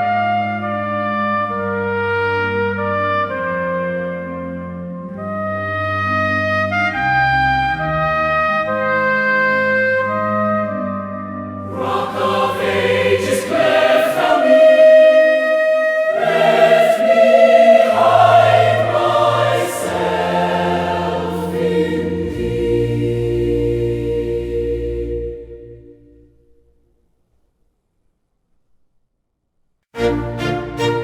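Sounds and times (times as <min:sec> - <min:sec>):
choir singing a hymn: 0:11.6 - 0:26.2.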